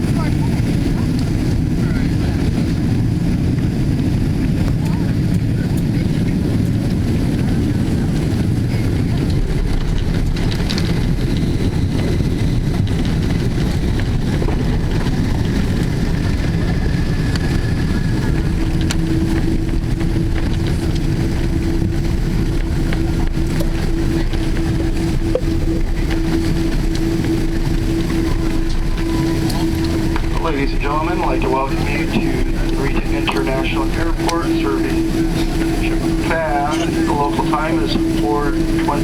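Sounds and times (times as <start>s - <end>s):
airplane cabin rumble: 0.0s - 39.0s
steady hum: 8.9s - 39.0s.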